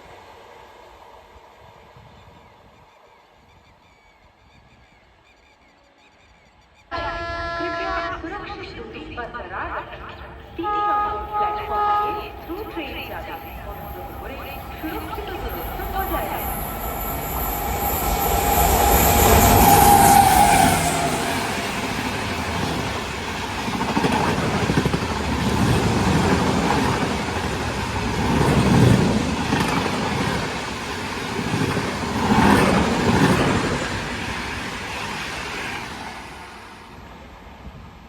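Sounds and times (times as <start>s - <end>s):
steady warning tone: 9.9s - 22.1s.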